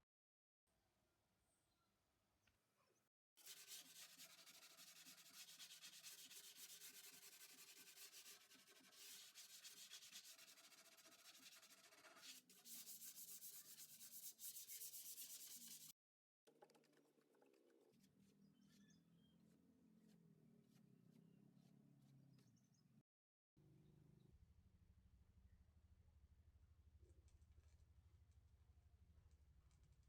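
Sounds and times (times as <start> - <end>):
sandpaper rubbing on wood: 3.4 - 15.9.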